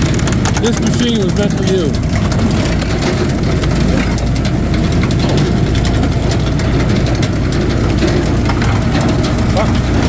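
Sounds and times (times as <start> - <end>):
firewood splitter engine running: 0.0 - 10.0.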